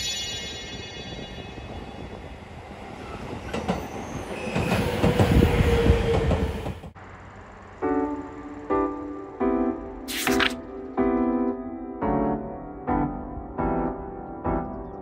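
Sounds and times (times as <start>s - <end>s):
train running close by: 0.0s - 10.0s.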